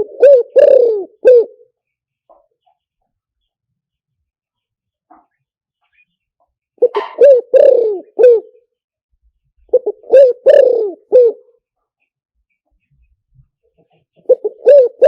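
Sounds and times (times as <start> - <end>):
dove cooing: 0.0 - 1.8, 6.8 - 8.6, 9.7 - 11.5, 14.2 - 15.0.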